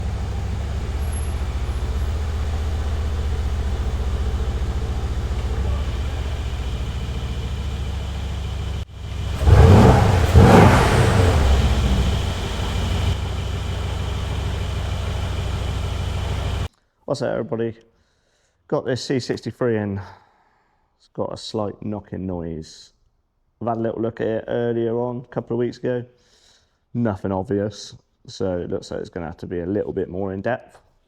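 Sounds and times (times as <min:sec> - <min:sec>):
car engine idling and revving: 0:00.0 - 0:16.7.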